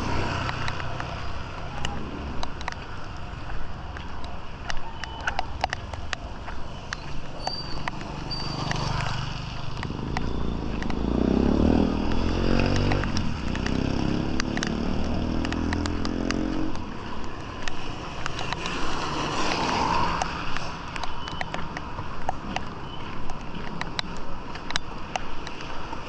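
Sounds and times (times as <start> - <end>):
motorcycle engine passing by: 7.7 - 16.9, 18.0 - 20.7.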